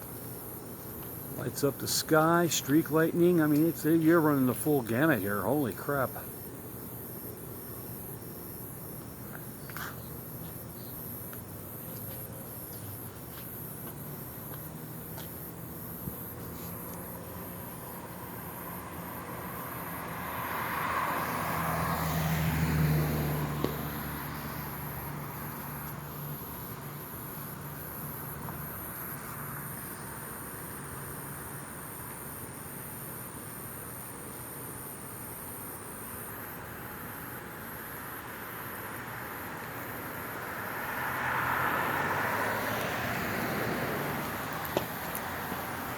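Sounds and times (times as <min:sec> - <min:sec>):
crickets and insects chirping: 0:00.0 - 0:45.9
vehicle passing by: 0:14.7 - 0:29.6, 0:38.2 - 0:45.9.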